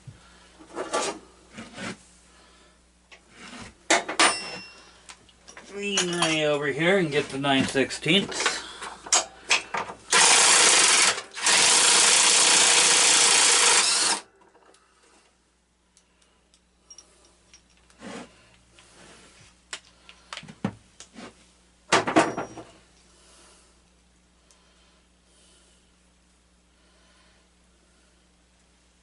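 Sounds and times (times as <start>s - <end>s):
power driver running: 7.4s - 14.3s.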